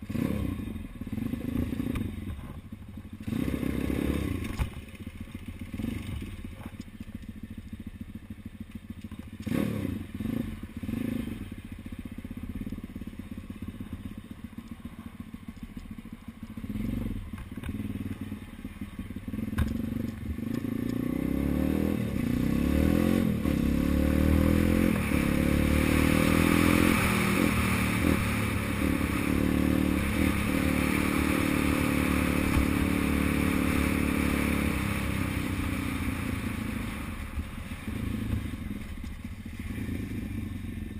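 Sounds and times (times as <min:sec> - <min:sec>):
motorbike engine revving: 0:00.0 - 0:06.7, 0:09.3 - 0:14.3, 0:16.6 - 0:40.9.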